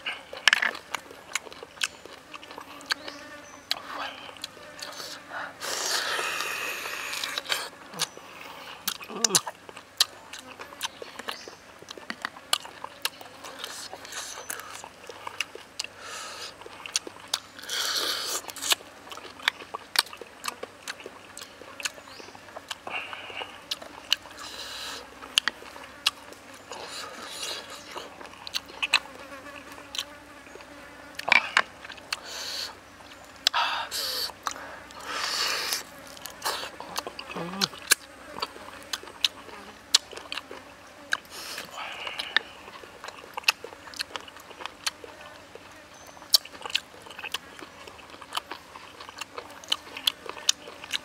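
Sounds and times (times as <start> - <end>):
chewing and lip-smacking: 0.0 - 8.2, 8.8 - 51.0
wet mouth clicks: 3.7 - 8.2, 8.8 - 14.6, 41.1 - 45.0.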